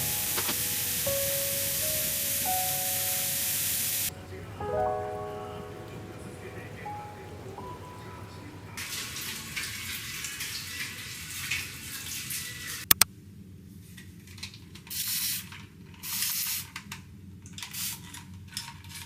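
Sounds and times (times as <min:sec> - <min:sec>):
water spraying: 0:00.0 - 0:04.2
water running from a tap: 0:08.2 - 0:12.8.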